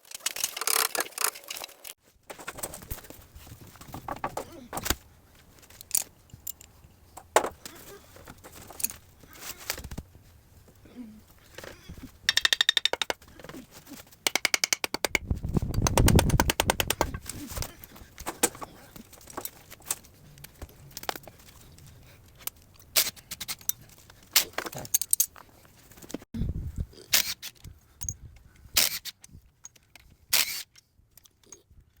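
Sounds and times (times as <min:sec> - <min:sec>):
rapid tool clicking: 0:14.2 - 0:17.3.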